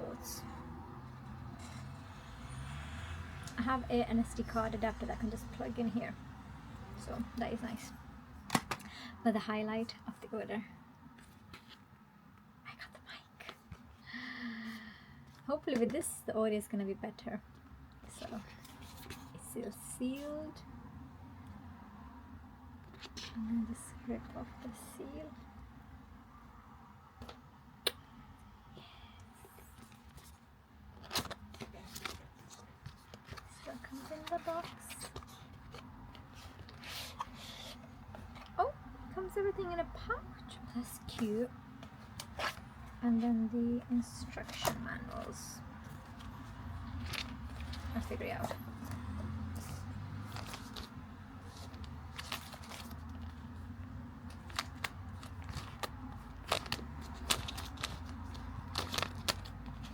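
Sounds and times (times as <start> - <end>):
low steady hum: 0.0 - 59.9
paper and cardboard crinkling: 29.8 - 38.6, 40.8 - 59.9.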